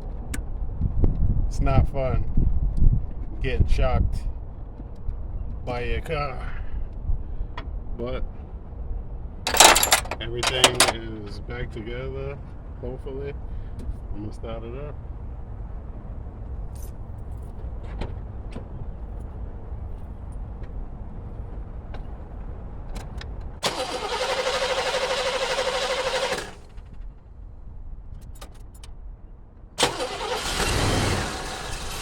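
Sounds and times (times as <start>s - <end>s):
starter cranking engine: 9.5s - 11.0s, 23.6s - 26.7s, 29.8s - 32.0s.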